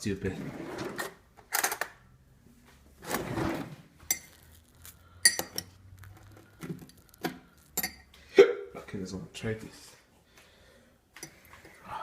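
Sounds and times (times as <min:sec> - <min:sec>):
metal utensil clinking on glass jar: 0:04.1 - 0:05.7, 0:07.6 - 0:08.1.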